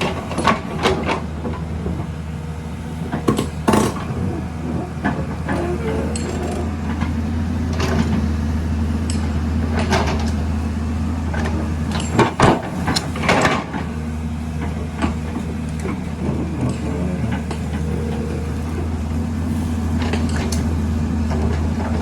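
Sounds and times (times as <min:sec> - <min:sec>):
diesel engine running: 0:00.0 - 0:22.0
metal clanks and knocks: 0:03.1 - 0:08.3, 0:11.3 - 0:22.0.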